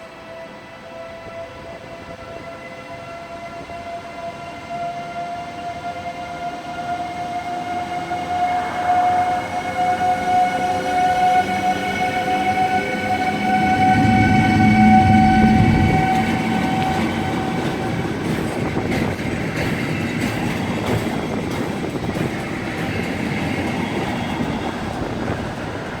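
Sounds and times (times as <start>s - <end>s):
electric locomotive whine: 0.0s - 26.0s
train wheels rumbling on rails: 0.0s - 26.0s.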